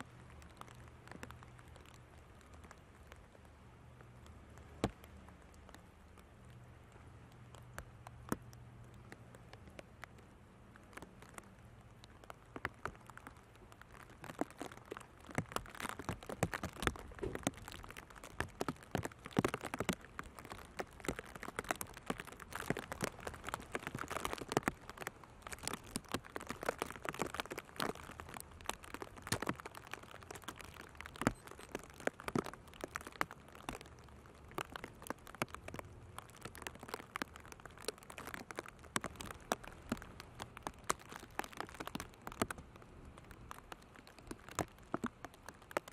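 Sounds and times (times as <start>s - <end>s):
raindrops tapping: 0.0s - 45.9s.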